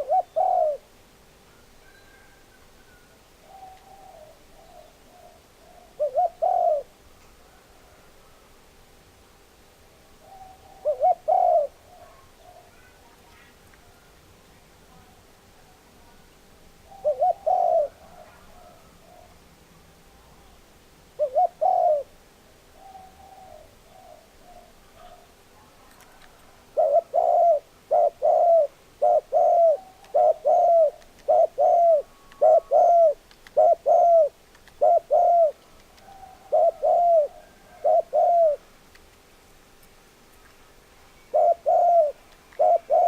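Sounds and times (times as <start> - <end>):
dove cooing: 0.0 - 0.9, 1.8 - 8.4, 10.2 - 14.1, 16.8 - 19.4, 20.4 - 38.7, 41.3 - 43.0.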